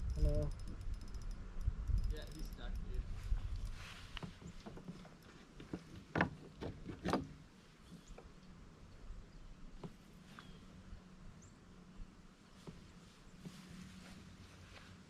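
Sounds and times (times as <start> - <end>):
knocks and clunks on a kayak: 3.7 - 8.3, 9.8 - 10.1, 12.6 - 13.6.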